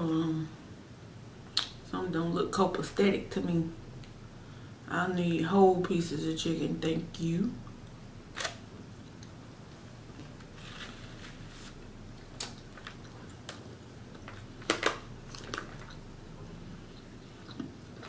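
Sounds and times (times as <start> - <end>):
soft chewing mouth sounds: 12.2 - 14.5, 15.2 - 18.0.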